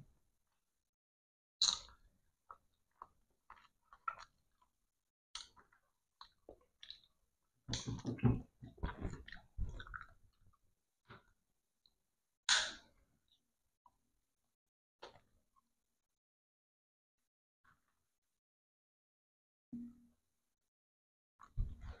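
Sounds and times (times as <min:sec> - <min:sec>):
chewing with wet smacks: 0:01.6 - 0:04.8.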